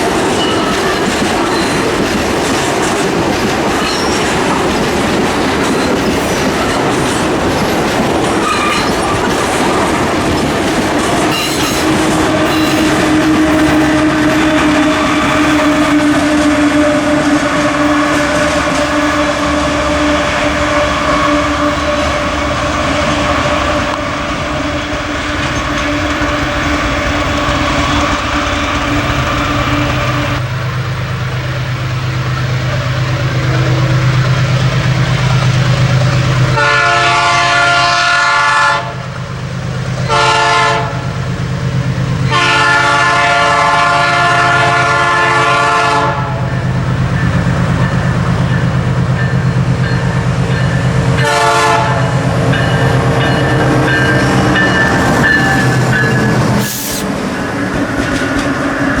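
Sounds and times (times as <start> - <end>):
diesel locomotive engine drone: 0.0 - 59.0
locomotive horn blasts: 11.3 - 26.5, 36.5 - 39.2, 40.0 - 41.2, 42.2 - 46.6, 51.1 - 57.1.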